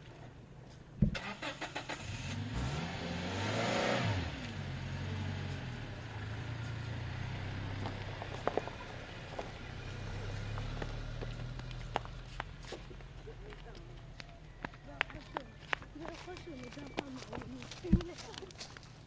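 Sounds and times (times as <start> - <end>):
car engine running: 4.2 - 13.4.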